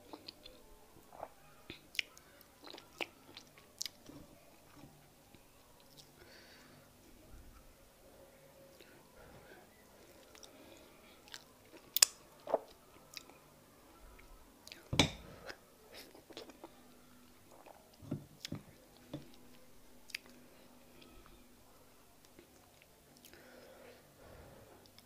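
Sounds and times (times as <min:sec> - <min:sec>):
person chewing: 0:00.0 - 0:04.9, 0:14.6 - 0:16.8, 0:17.5 - 0:19.5.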